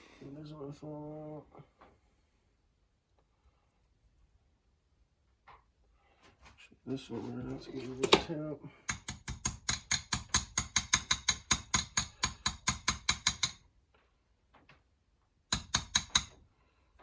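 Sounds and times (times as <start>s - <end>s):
hammer tapping on steel: 8.9s - 13.6s, 15.5s - 16.4s.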